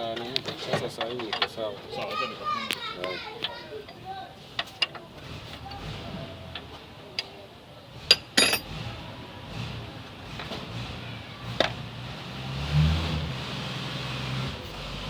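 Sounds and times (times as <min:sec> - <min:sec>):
steel tools clinking on metal: 0:08.1 - 0:08.8
tools rattling: 0:08.1 - 0:08.8.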